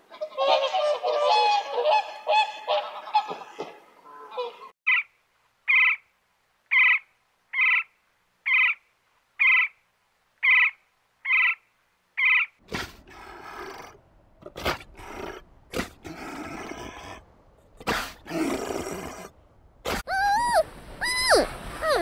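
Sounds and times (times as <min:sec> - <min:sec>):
woodpecker calling: 0:04.9 - 0:06.1, 0:06.7 - 0:08.8, 0:09.4 - 0:09.8, 0:10.4 - 0:12.6
sea lion pup calls: 0:19.9 - 0:22.0.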